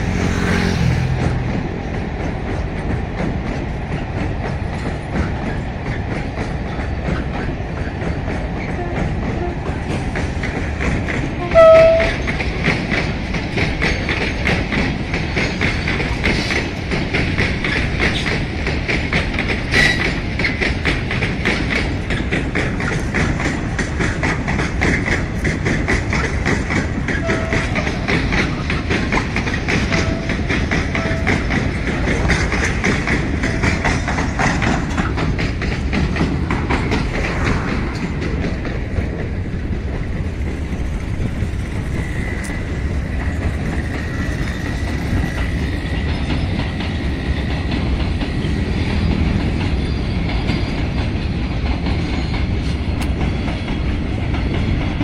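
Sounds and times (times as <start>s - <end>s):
train wheels clicking over rail joints: 0.0s - 55.0s.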